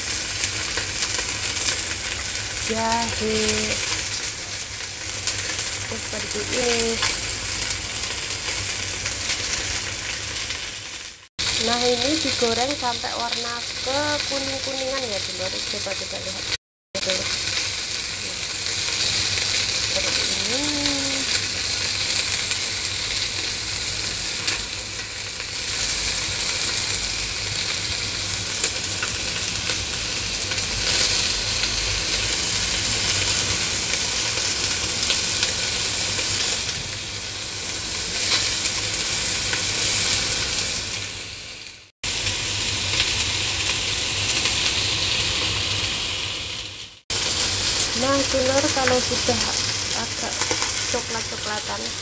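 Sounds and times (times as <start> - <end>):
chicken wings sizzling in oil: 0.0 - 52.0.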